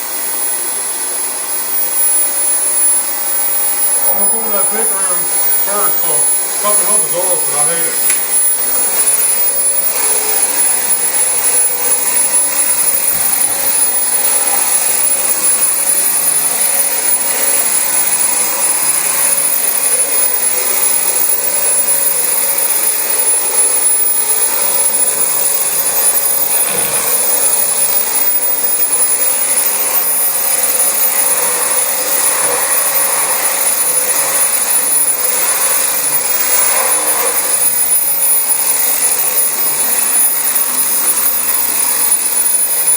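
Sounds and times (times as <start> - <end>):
vacuum cleaner running over carpet: 0.0 - 42.9.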